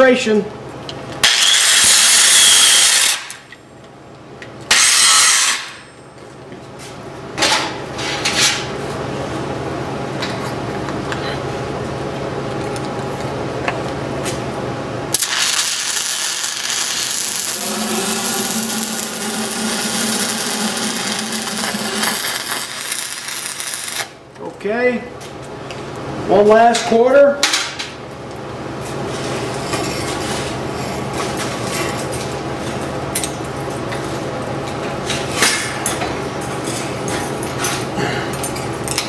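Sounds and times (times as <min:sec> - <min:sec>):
angle grinder grinding steel: 0:15.2 - 0:24.1.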